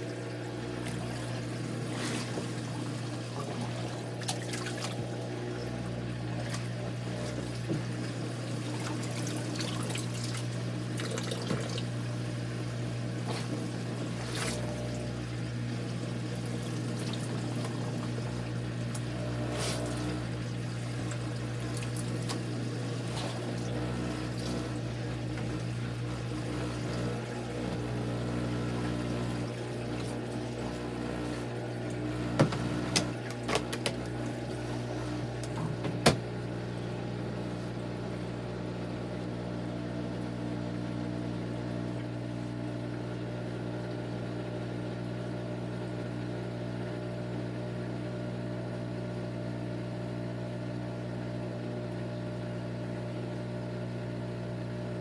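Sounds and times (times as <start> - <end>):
water sloshing in machine: 0.0 - 38.4
washing machine motor hum: 0.0 - 55.0.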